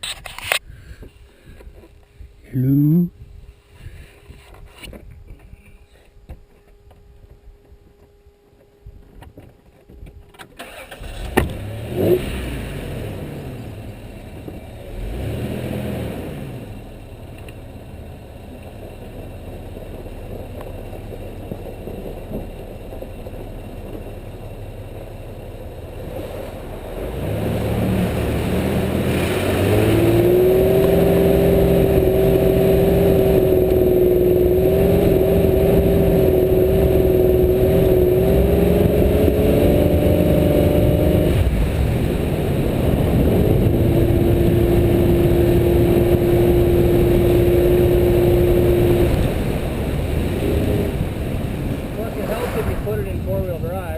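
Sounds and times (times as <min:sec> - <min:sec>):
engine starting and revving: 0:10.6 - 0:17.0, 0:26.0 - 0:53.5
engine whine at high revs: 0:10.6 - 0:53.9.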